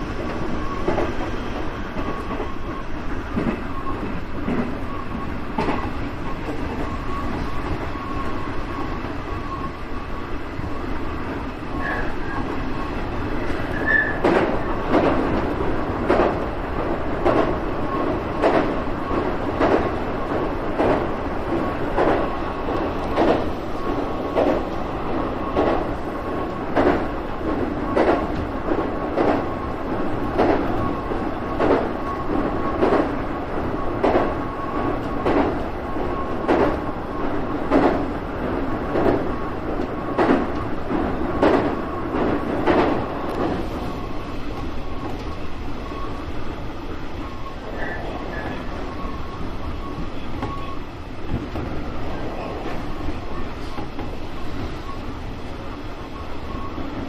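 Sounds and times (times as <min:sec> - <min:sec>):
train running rumble: 0:00.0 - 0:57.0
train wheels clacking over rail joints: 0:11.7 - 0:43.7.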